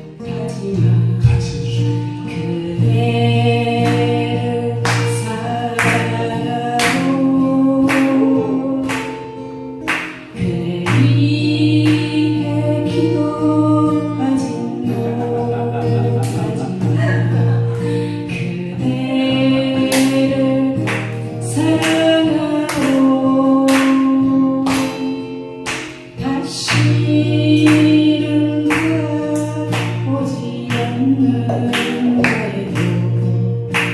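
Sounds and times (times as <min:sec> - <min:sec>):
strummed acoustic guitar: 0:00.0 - 0:33.9
group of voices singing: 0:10.4 - 0:24.8.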